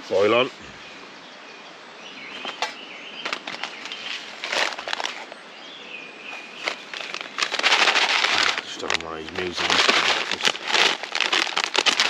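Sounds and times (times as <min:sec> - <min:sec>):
faint bird chirps: 0:00.1 - 0:07.1
camp gear rustling and clicking: 0:02.3 - 0:05.4, 0:06.3 - 0:12.0.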